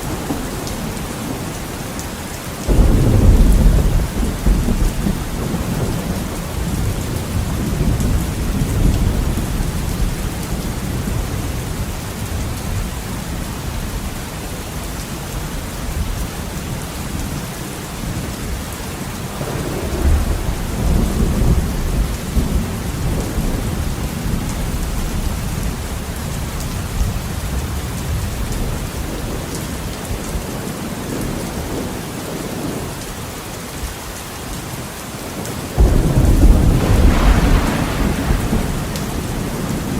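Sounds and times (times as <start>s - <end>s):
heavy rain falling: 0.0s - 39.9s
rolling thunder: 2.7s - 12.9s, 19.3s - 29.4s, 35.8s - 39.9s.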